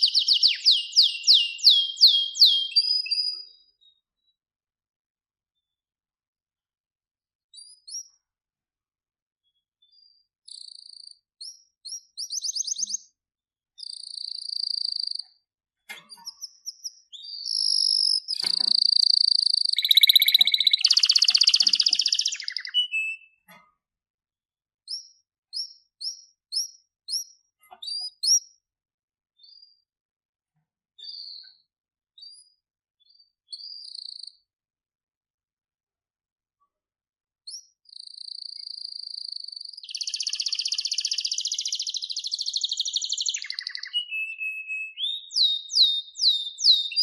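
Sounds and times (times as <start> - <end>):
canary singing: 0.0 - 3.9, 9.9 - 13.1, 16.1 - 23.5, 37.5 - 47.0.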